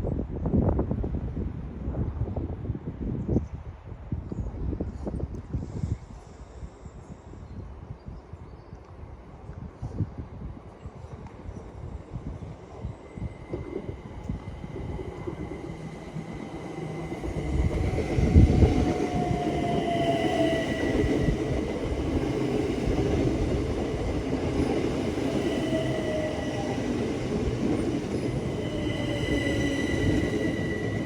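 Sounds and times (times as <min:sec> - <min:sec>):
train wheel and rail rumble: 0:00.1 - 0:31.0
falling whining tones: 0:24.5 - 0:31.0.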